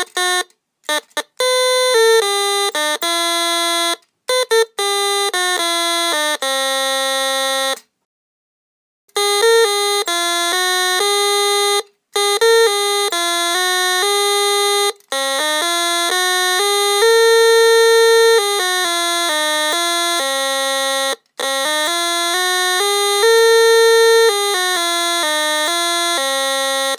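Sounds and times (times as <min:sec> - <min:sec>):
electronic organ buzzy notes: 0:09.2 - 0:26.9.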